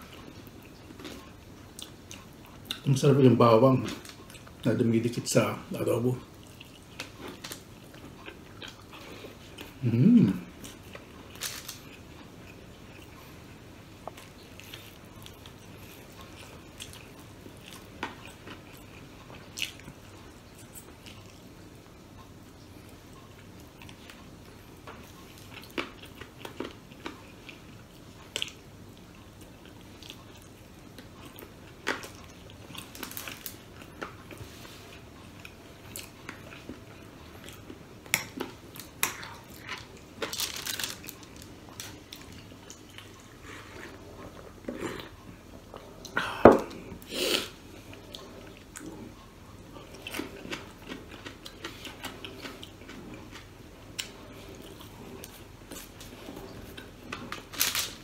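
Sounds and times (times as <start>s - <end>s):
person chewing with crunches: 0.0s - 4.7s, 5.8s - 58.0s.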